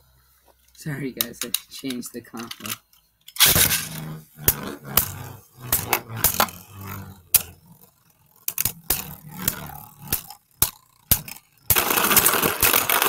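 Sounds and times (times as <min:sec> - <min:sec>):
spinning tops clattering: 0:01.2 - 0:13.0.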